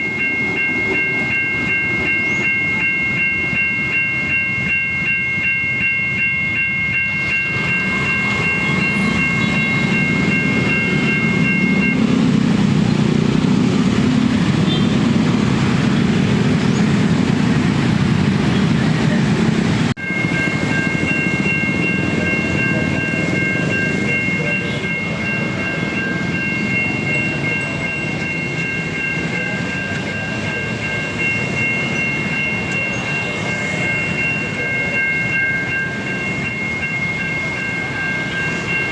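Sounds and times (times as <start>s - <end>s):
level crossing warning tone: 0.0s - 38.9s
train rumbling past: 0.0s - 38.9s
wheels clicking on rails: 0.0s - 38.9s.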